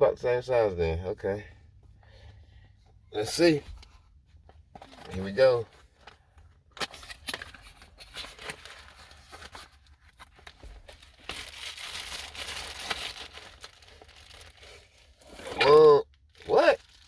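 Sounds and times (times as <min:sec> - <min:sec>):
packaging crinkling and tearing: 0:06.8 - 0:17.0.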